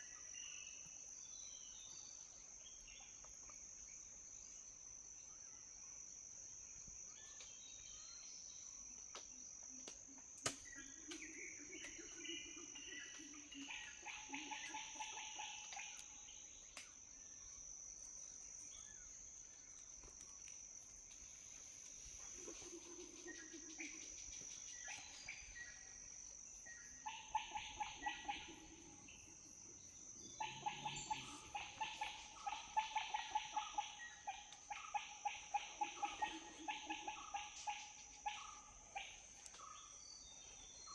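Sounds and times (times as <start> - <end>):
high-pitched insect drone: 0.0 - 40.9
rapid repeated animal calls: 10.9 - 16.3, 26.8 - 40.0.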